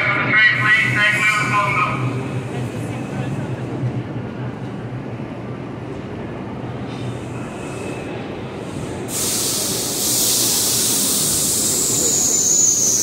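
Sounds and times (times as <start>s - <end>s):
train rumbling: 0.0s - 13.0s
loud hiss: 8.6s - 13.0s.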